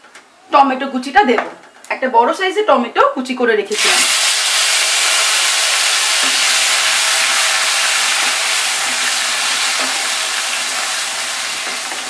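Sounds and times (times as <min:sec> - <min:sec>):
tomato sizzling in hot oil: 0:03.7 - 0:12.0.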